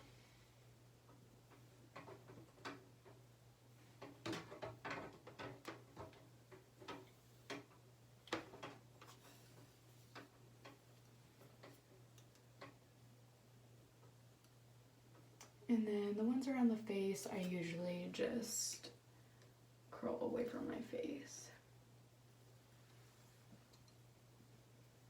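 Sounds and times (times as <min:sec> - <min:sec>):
curling iron clicks and rustles: 0:01.0 - 0:12.8.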